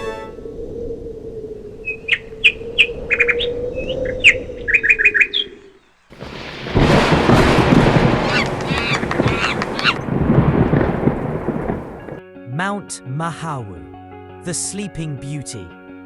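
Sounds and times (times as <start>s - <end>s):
birds chirping: 1.8s - 6.3s, 7.1s - 12.2s
loud dense rush of noise: 6.2s - 12.2s.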